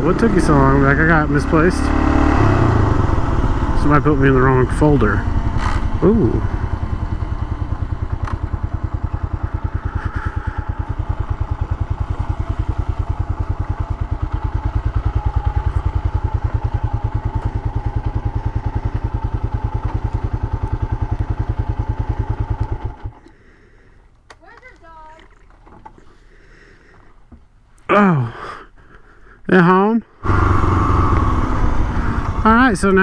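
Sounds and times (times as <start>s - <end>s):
motorcycle engine running steadily: 0.0s - 23.4s, 30.2s - 33.0s.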